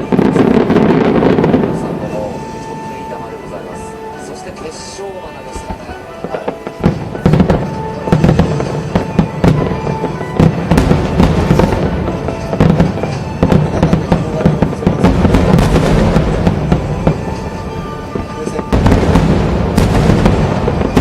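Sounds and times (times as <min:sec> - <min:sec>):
fireworks bursting and crackling: 0:00.0 - 0:21.0
music: 0:00.0 - 0:21.0.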